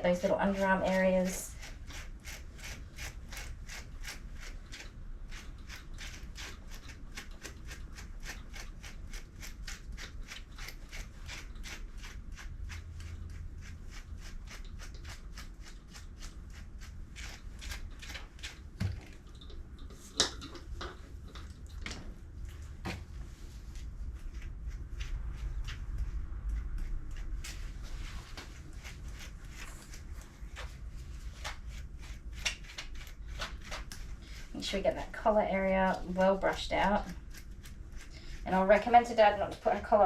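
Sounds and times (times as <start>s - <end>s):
brush strokes through dog fur: 23.0s - 40.0s.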